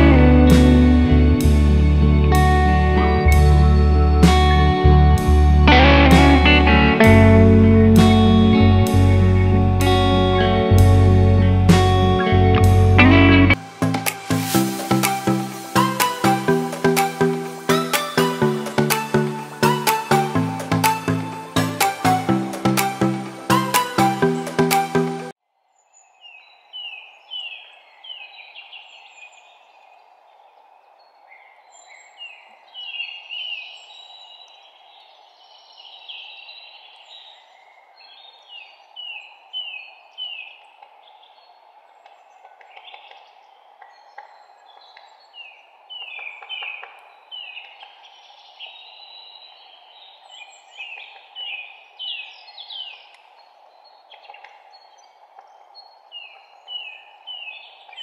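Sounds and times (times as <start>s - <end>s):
birds chirping: 0.0s - 13.6s, 25.7s - 58.0s
background hiss: 11.7s - 26.0s.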